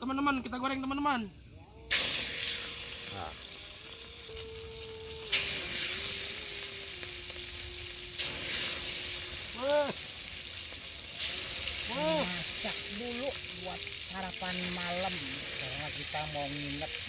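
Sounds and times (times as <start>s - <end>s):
meat sizzling in hot oil: 1.9s - 17.0s.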